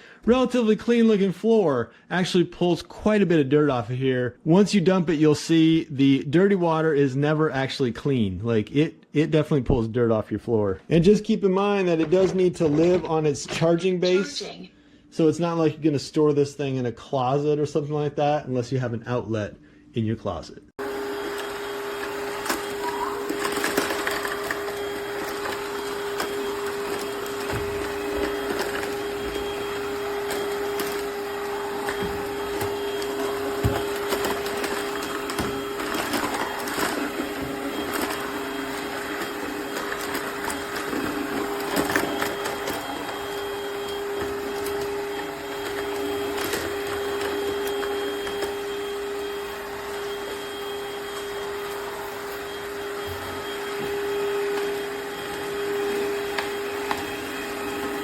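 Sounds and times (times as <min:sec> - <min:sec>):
floor cleaner motor whining: 0:20.8 - 0:58.0.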